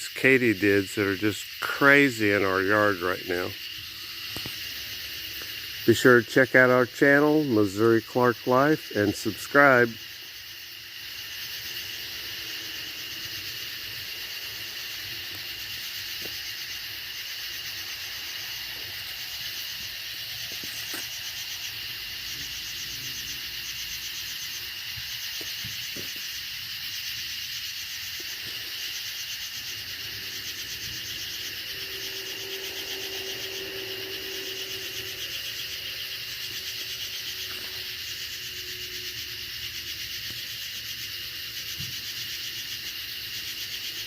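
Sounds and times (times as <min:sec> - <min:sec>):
katydids buzzing: 0:00.0 - 0:44.0
faint low hum: 0:29.7 - 0:39.4.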